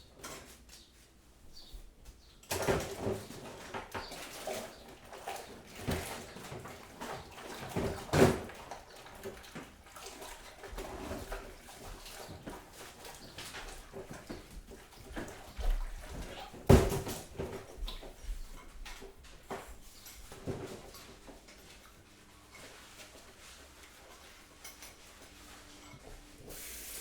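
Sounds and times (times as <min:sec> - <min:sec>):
kitchen items knocking and clinking: 0:02.4 - 0:09.8, 0:12.0 - 0:21.8.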